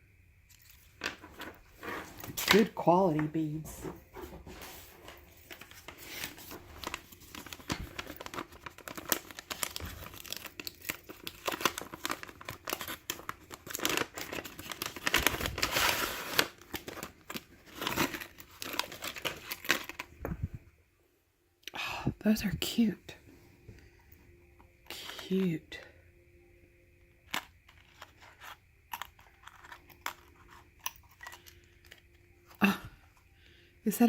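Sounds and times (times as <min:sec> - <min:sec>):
wrapping crinkling and rustling: 0:00.5 - 0:20.6, 0:27.2 - 0:32.8
wrapping tearing: 0:05.5 - 0:20.1.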